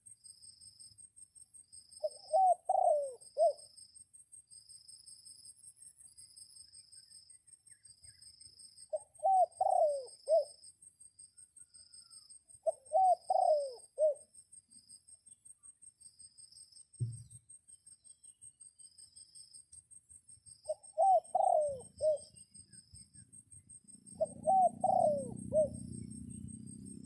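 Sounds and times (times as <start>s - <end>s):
insects chirring: 0.0s - 27.0s
dove cooing: 2.0s - 3.6s, 8.9s - 10.6s, 12.6s - 14.2s, 20.7s - 22.4s, 24.1s - 27.0s.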